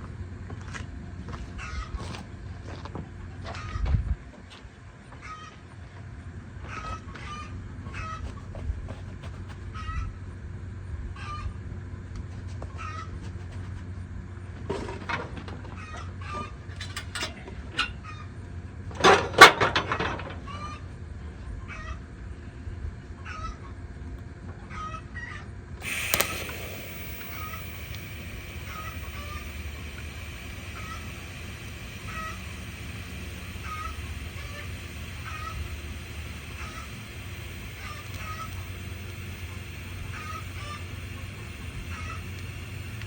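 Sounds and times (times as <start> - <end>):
steady hiss: 25.8 - 43.0.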